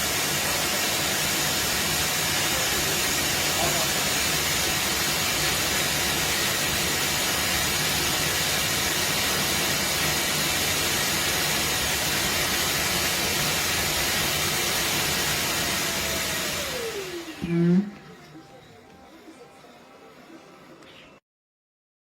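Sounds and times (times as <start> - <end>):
robot vacuum suction motor running: 0.0 - 20.8.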